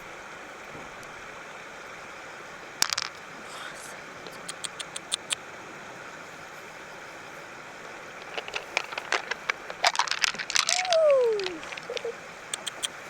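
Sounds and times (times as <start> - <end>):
sharp clicks of hard objects: 8.2 - 13.0.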